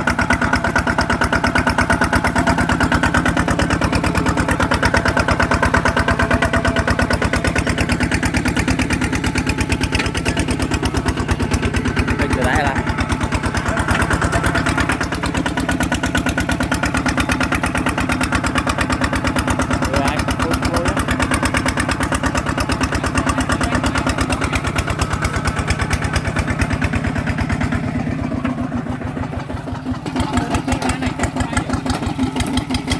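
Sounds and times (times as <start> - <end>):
tractor diesel engine running: 0.0 - 32.9.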